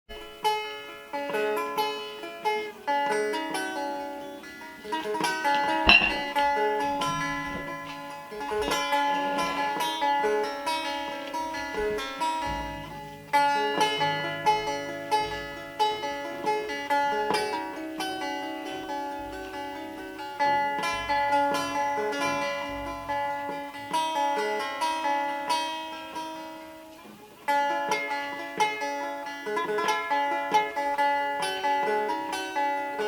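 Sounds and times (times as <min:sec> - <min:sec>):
plucked long-necked lute: 0:00.1 - 0:33.0
sharp knock: 0:05.8 - 0:07.7.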